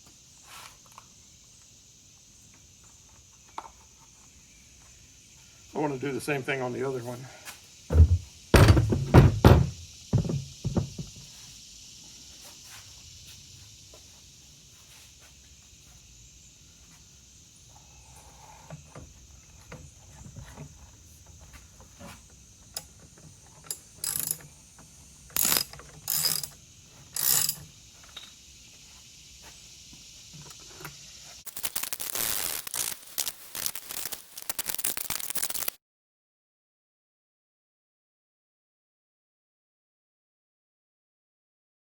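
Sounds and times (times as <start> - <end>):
hand ratchet clicking: 23.6 - 24.4, 25.3 - 26.6, 27.2 - 27.6, 31.5 - 35.8.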